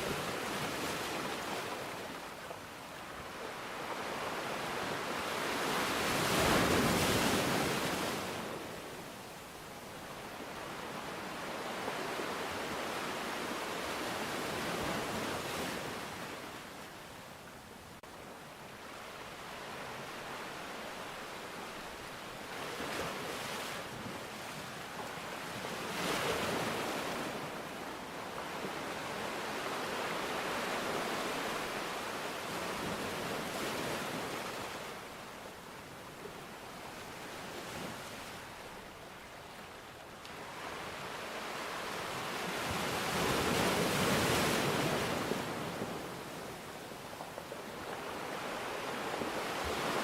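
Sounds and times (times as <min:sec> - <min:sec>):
waves breaking: 0:40.3 - 0:50.0.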